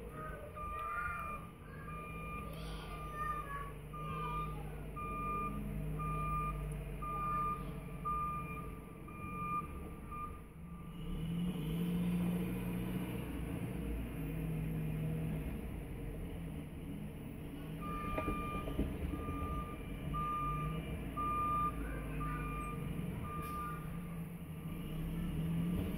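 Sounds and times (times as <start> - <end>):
vehicle engine running: 0.0 - 25.9
back-up alarm beeping: 0.4 - 11.0, 17.8 - 25.1.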